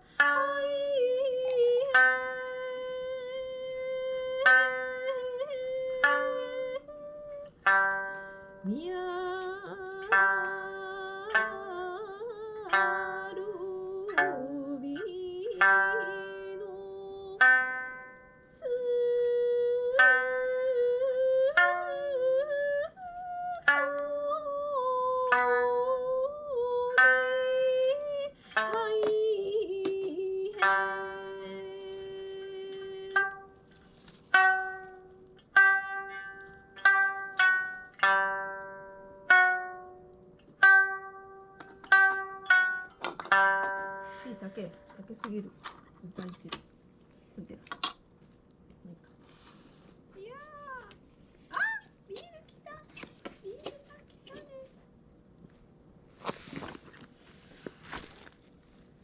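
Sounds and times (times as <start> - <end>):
wavering held melody: 0.0 - 46.7
plucked lute notes: 0.0 - 59.0.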